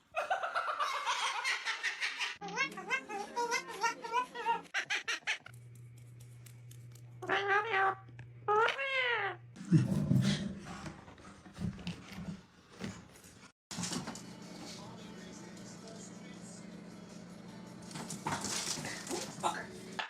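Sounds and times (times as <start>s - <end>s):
pet animal meowing calls: 7.2s - 9.4s.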